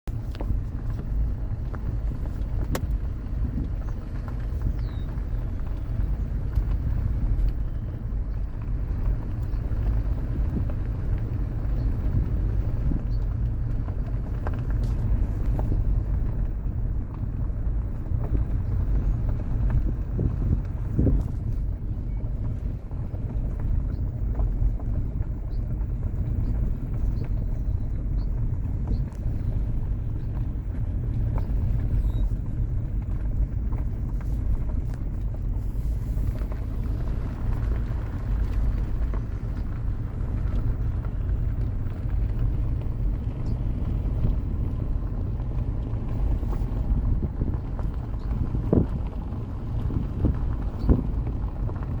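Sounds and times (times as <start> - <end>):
steady low rumble: 0.0 - 52.0
faint high bird chirps: 4.8 - 5.1, 32.0 - 32.3.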